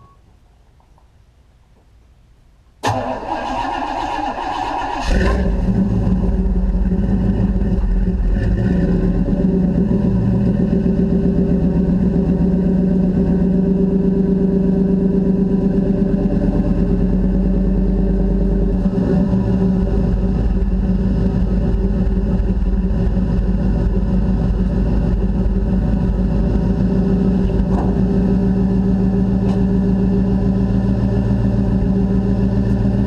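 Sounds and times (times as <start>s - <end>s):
pickup truck engine idling: 4.2s - 33.0s.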